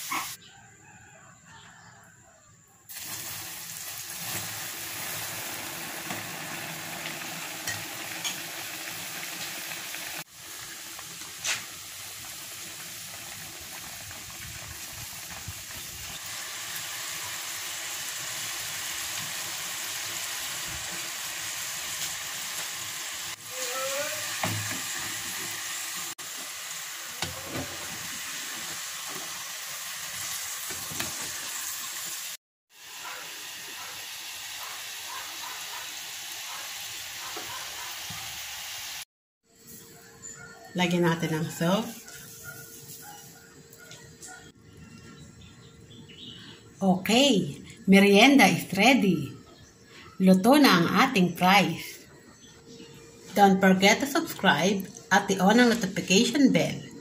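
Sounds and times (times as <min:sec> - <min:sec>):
fries sizzling in hot oil: 0:00.0 - 0:00.4, 0:02.9 - 0:39.1.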